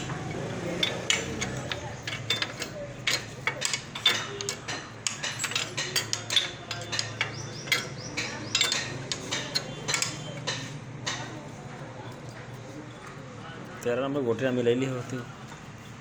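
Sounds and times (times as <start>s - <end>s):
tools clinking on metal: 0.0s - 11.3s.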